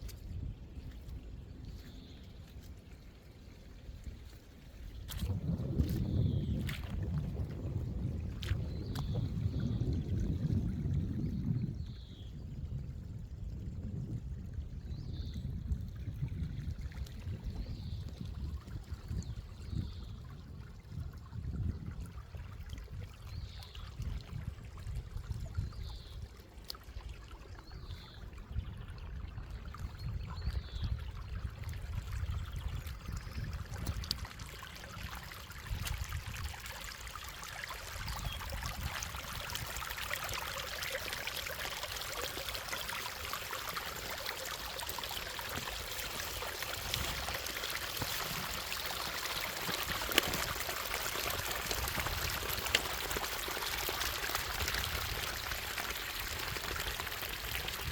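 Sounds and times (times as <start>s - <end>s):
stream water rushing: 35.3s - 57.9s.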